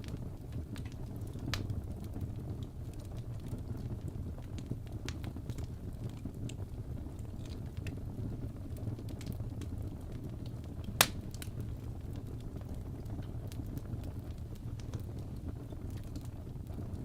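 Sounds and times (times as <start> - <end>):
wood fire crackling: 0.0 - 17.0
loud pop from fire: 10.9 - 11.6.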